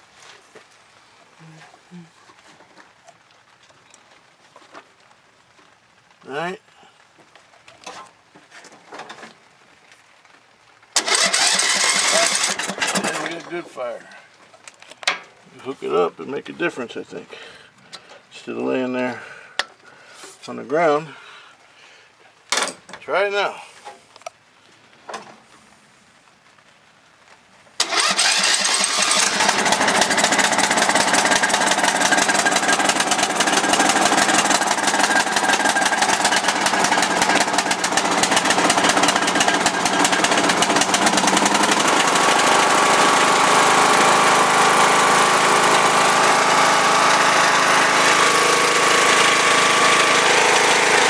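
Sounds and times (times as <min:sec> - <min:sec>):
lawnmower engine starting and running: 0:11.0 - 0:14.7, 0:22.5 - 0:23.0, 0:27.8 - 0:51.0.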